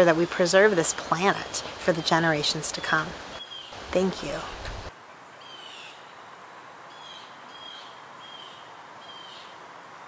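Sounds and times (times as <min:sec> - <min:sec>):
outdoor ambience hiss: 0:00.0 - 0:10.0
bird calling: 0:06.9 - 0:09.6.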